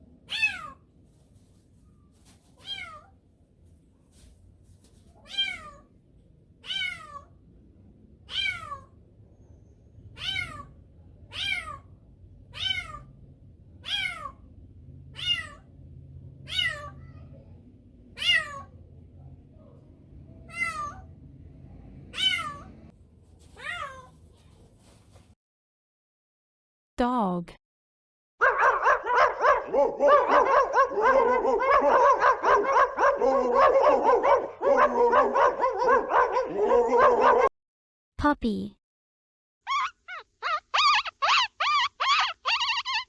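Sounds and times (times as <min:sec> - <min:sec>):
kitten meowing: 0:02.6 - 0:03.1, 0:05.2 - 0:05.8, 0:06.6 - 0:07.3, 0:08.3 - 0:08.9, 0:10.2 - 0:10.7, 0:12.5 - 0:13.1, 0:13.8 - 0:14.4, 0:15.2 - 0:15.6, 0:16.5 - 0:17.0, 0:18.2 - 0:18.7, 0:22.2 - 0:22.7.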